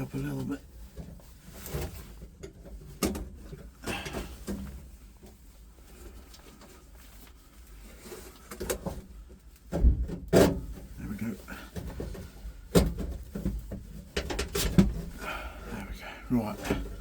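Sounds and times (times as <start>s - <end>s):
knocks and scraping of pipe: 0.9s - 6.8s, 8.0s - 11.0s, 11.6s - 15.4s.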